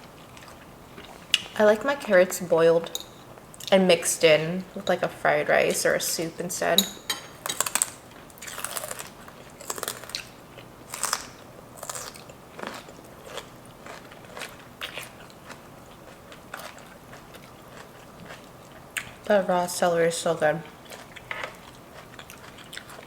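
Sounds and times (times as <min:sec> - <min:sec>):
celery being bitten and chewed: 0:07.5 - 0:19.2, 0:20.7 - 0:23.0.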